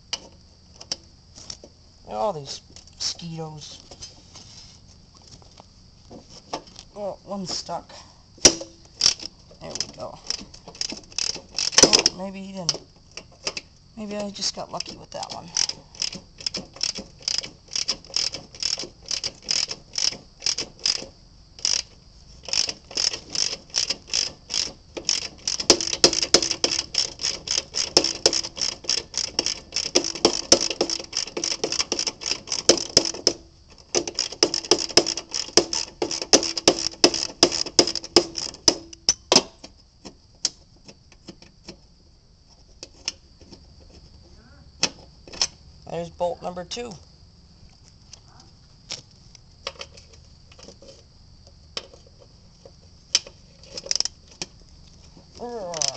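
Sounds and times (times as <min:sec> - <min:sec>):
ratchet wrench clicking: 0:08.4 - 0:13.7, 0:14.8 - 0:39.5.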